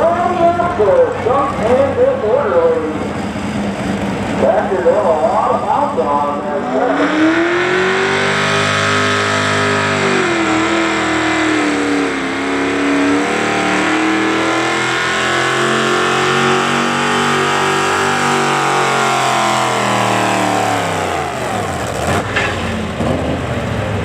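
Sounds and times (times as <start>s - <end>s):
tractor engine at full throttle: 0.0s - 24.0s.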